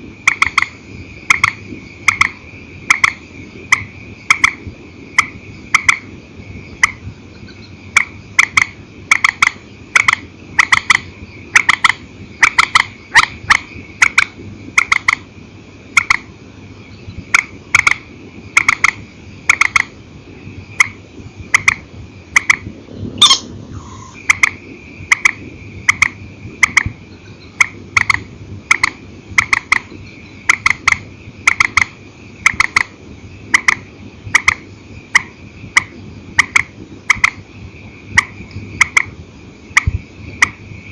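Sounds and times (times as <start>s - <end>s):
swamphen calling: 0.0s - 15.3s, 23.2s - 38.9s.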